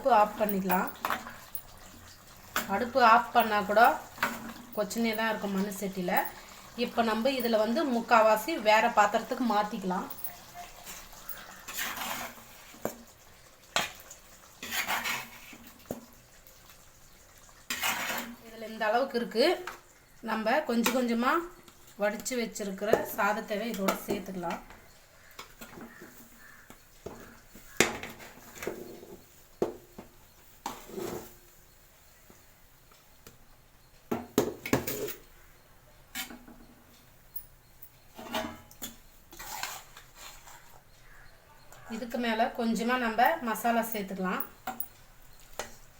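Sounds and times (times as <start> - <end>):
spoon scraping: 0.0 - 13.0, 37.3 - 41.3
spoon clinking on clay pot: 0.2 - 1.8, 2.6 - 12.0.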